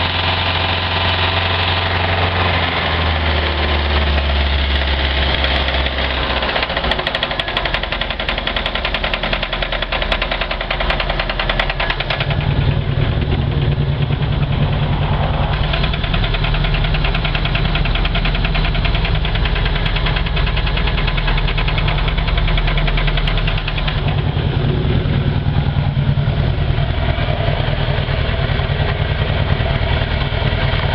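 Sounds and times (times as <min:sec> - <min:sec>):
boat engine knocking: 0:04.0 - 0:30.9.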